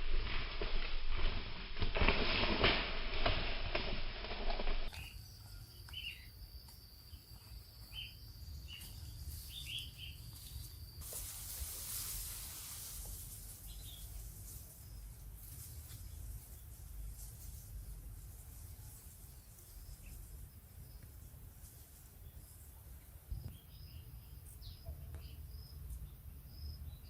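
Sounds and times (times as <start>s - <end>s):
high even hiss: 10.4s - 15.8s.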